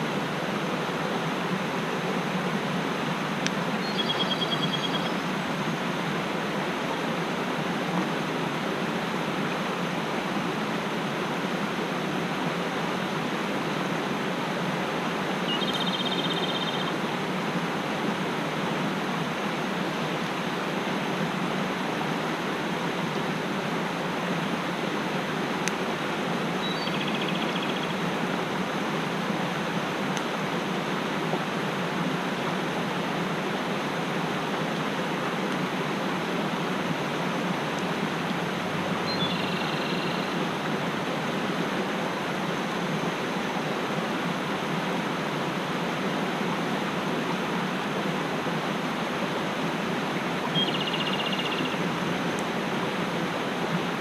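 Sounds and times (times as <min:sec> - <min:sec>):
stream water rushing: 0:00.0 - 0:54.0
small bird trilling: 0:03.8 - 0:05.2, 0:15.5 - 0:16.9, 0:50.6 - 0:51.7.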